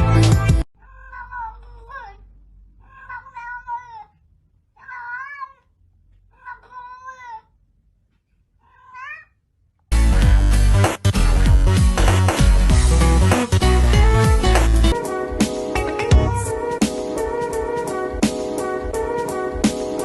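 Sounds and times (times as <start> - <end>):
loud music: 0.0 - 0.6, 9.9 - 20.0
cat meowing: 0.8 - 2.2, 2.8 - 4.2, 4.8 - 5.7, 6.3 - 7.6, 8.6 - 9.4, 15.9 - 16.8.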